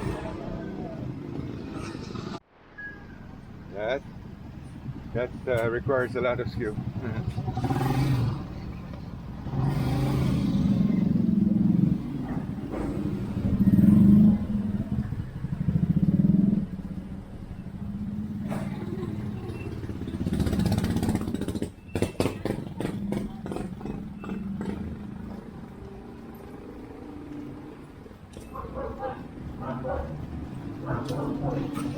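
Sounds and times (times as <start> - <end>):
motorcycle engine revving: 5.4 - 17.0, 17.8 - 26.2.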